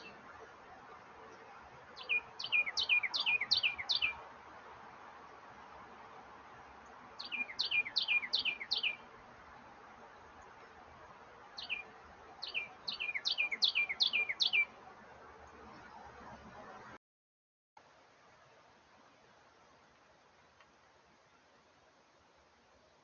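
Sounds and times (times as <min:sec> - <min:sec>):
steady background hiss: 0:00.0 - 0:17.0, 0:17.8 - 0:23.0
songbird whistled notes: 0:02.0 - 0:04.2, 0:07.2 - 0:09.0, 0:11.6 - 0:14.7.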